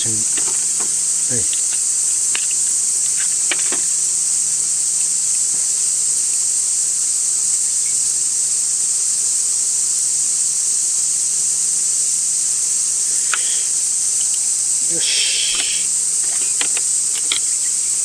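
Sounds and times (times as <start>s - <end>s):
cicadas shrilling: 0.0s - 18.0s
light clicks: 15.5s - 17.6s.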